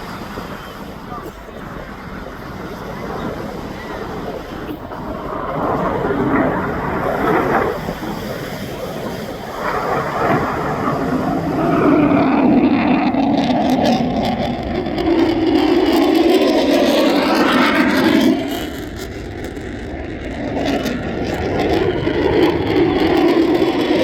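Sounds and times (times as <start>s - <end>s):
jet engine running: 0.0s - 24.0s
wind buffeting microphone: 0.0s - 24.0s.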